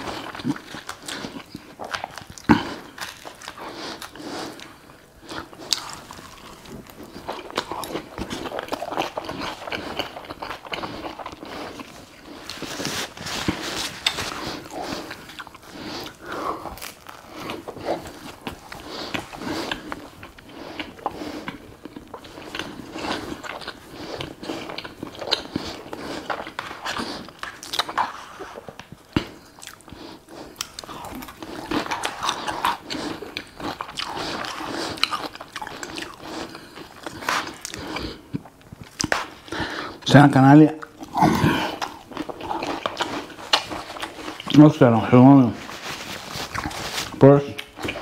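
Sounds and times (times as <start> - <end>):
person chewing crunchy food: 0.0 - 48.0.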